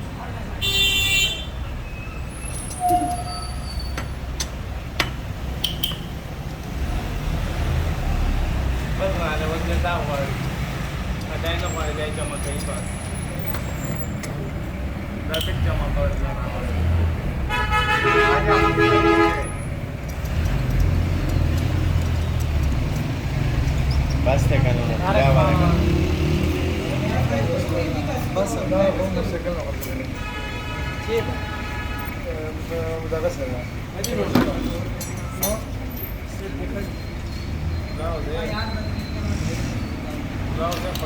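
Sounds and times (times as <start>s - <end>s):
rumble of engines and traffic: 0.0s - 41.0s
vehicle horn blast: 0.6s - 1.6s, 2.8s - 3.6s, 17.5s - 19.7s, 30.2s - 32.3s
sharp clicks and clinks: 4.4s - 6.7s, 20.0s - 24.2s, 34.0s - 36.5s.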